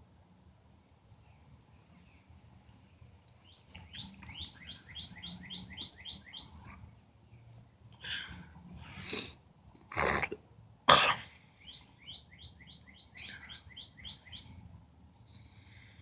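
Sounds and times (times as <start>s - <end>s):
bird chirping: 3.4s - 6.8s, 11.6s - 14.6s
short breathy hiss: 8.9s - 9.4s.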